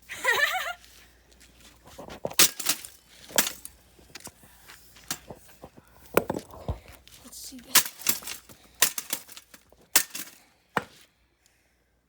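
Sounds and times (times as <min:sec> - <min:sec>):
sledgehammer striking bicycle: 0:02.3 - 0:03.8, 0:07.7 - 0:11.0.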